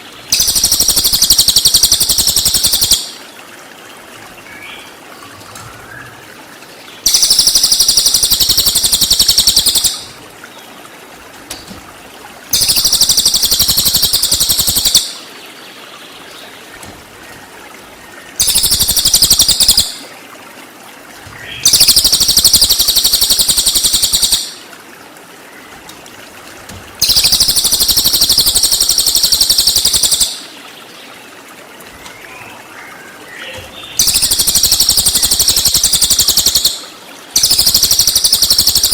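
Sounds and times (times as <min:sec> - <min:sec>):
running water trickling: 0:00.0 - 0:38.9
bird trilling rapidly: 0:07.0 - 0:10.1, 0:21.4 - 0:24.5, 0:27.0 - 0:30.4, 0:33.4 - 0:36.8.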